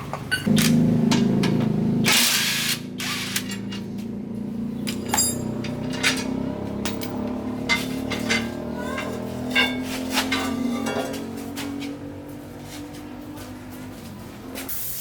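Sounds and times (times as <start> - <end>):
steady machine hum: 0.4 - 8.6
metallic clinks and knocks: 4.8 - 11.8.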